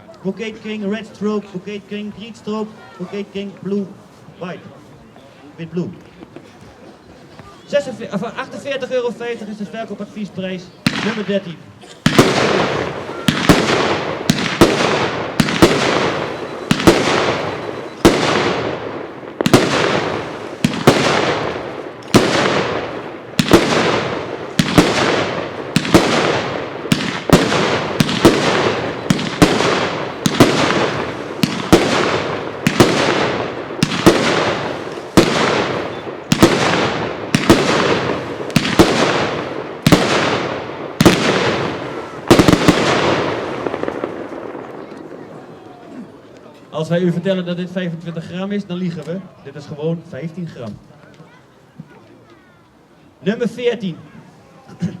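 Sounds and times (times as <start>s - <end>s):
fireworks firing bangs: 7.7s - 45.9s.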